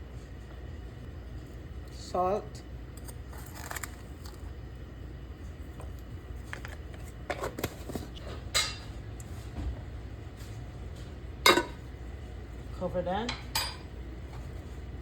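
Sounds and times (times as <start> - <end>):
low steady hum: 0.0 - 15.0
cookware and utensils clicking: 11.5 - 11.8, 13.3 - 13.9.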